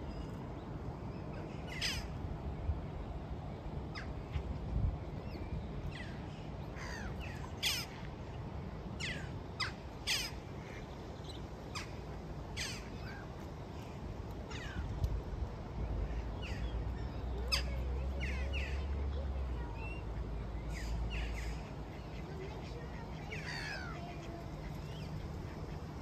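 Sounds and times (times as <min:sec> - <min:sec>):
birds giving harsh calls: 0:06.8 - 0:08.0, 0:09.0 - 0:10.8, 0:12.6 - 0:13.2, 0:22.9 - 0:25.8.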